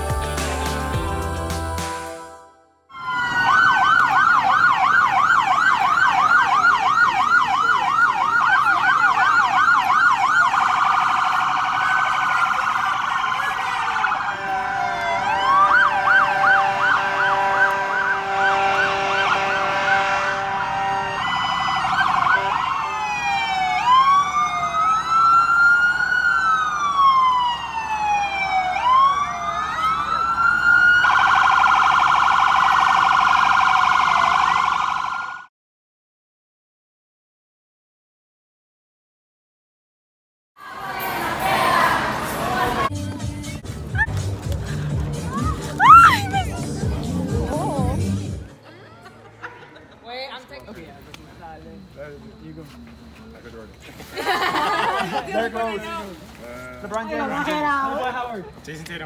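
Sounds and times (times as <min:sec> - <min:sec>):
emergency vehicle sirens: 0:02.9 - 0:35.5, 0:40.6 - 0:48.6.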